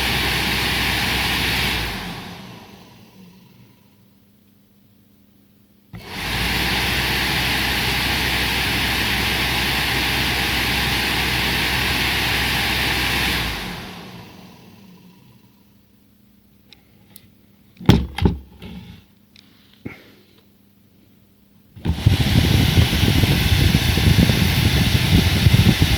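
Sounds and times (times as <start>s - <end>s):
cooling fan running: 0.0s - 4.0s, 5.9s - 15.6s, 21.8s - 25.9s
fan spinning down: 0.0s - 4.0s, 5.9s - 15.7s, 21.8s - 25.9s
sharp knocks: 17.8s - 18.7s.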